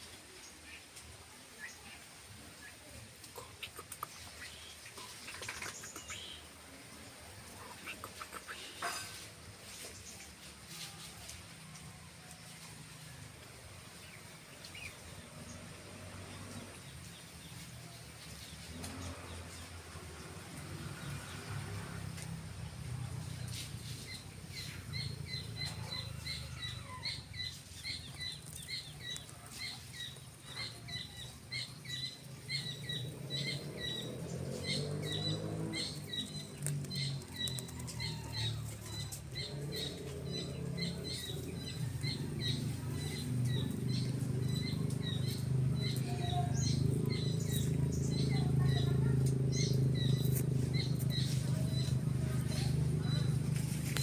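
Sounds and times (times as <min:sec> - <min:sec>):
bird chirping: 0:02.6 - 0:09.2, 0:23.1 - 0:54.0.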